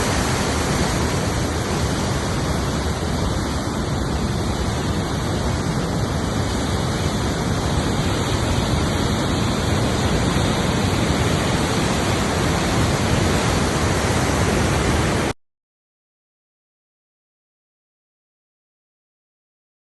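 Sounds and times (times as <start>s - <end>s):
river rushing: 0.0s - 15.4s.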